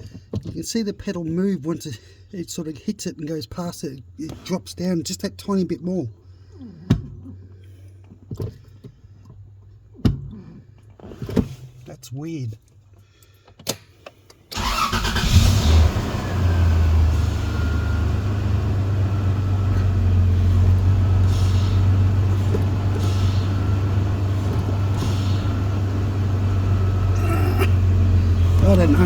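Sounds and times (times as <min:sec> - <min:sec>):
car engine starting and idling: 0:14.5 - 0:29.0.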